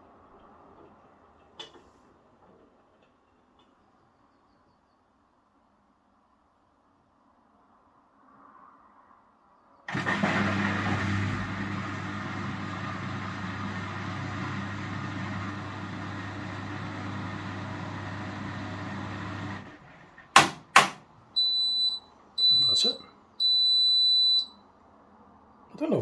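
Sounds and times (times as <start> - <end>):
washing machine drain pump humming: 9.9 - 23.9
washing machine switch clicks: 20.4 - 21.0
high beep: 21.4 - 24.6.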